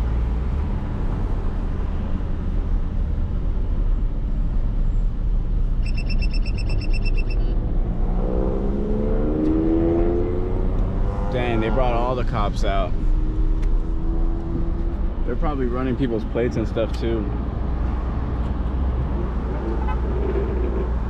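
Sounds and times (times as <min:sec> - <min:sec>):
rapid electronic beeps: 0:05.8 - 0:07.6
car engine accelerating: 0:07.7 - 0:15.4
road rumble in cabin: 0:10.2 - 0:21.0.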